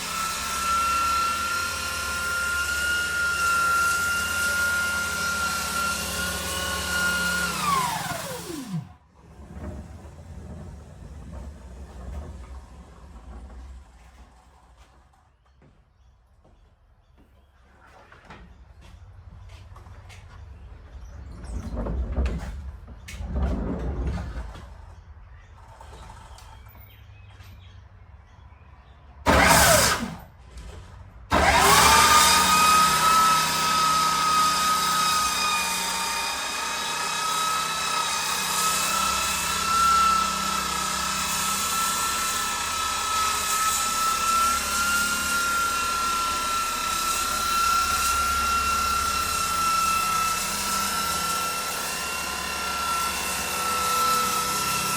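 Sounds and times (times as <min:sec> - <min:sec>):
electric sander whining: 0:00.0 - 0:09.0, 0:29.3 - 0:30.2, 0:31.3 - 0:54.9.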